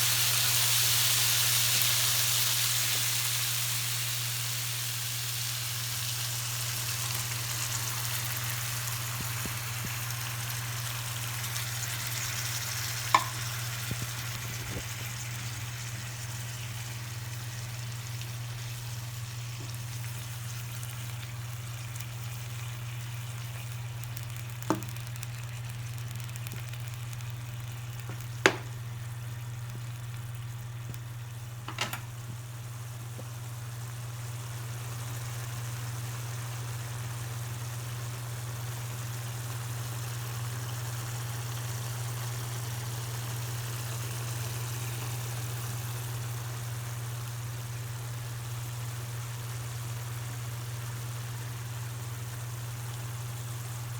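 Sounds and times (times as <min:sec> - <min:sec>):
livers sizzling in a pan: 0:00.0 - 0:53.9
low steady hum: 0:05.4 - 0:35.8.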